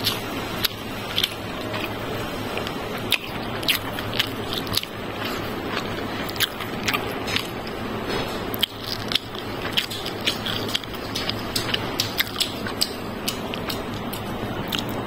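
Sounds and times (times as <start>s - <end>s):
chewing with wet mouth clicks: 0.0s - 15.0s
steady background hiss: 0.0s - 15.0s.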